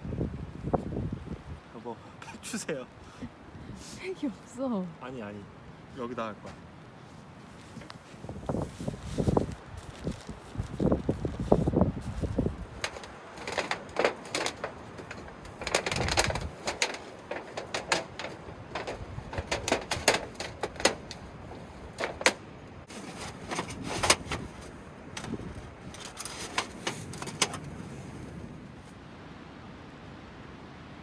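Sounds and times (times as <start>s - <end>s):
wind noise: 0.0s - 1.7s, 3.2s - 4.1s, 7.4s - 29.0s
tent gear clicks and rustles: 7.5s - 28.3s.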